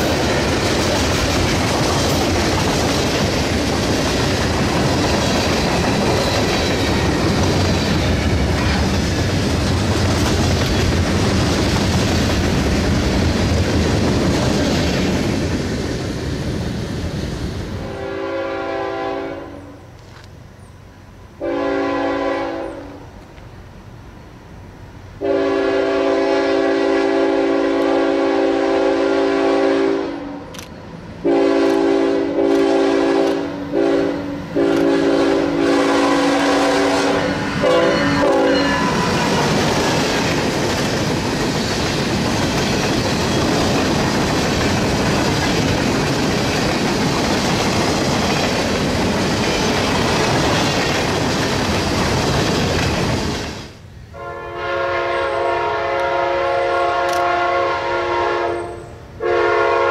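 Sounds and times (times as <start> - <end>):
wheels clickety-clack: 0.0 - 17.2, 38.2 - 53.6
freight cars rumbling on rails: 0.0 - 19.1, 30.4 - 53.9
locomotive horn blasts: 17.8 - 19.8, 21.4 - 23.0, 25.2 - 30.5, 31.2 - 39.6, 54.1 - 59.9.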